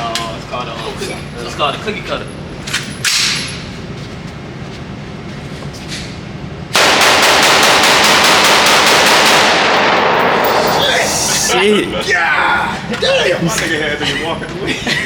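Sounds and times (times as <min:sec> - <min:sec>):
rapid rifle shots echoing: 0:06.8 - 0:11.1.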